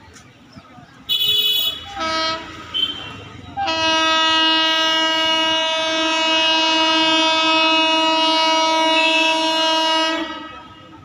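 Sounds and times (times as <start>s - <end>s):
locomotive horn blast: 1.1s - 11.0s.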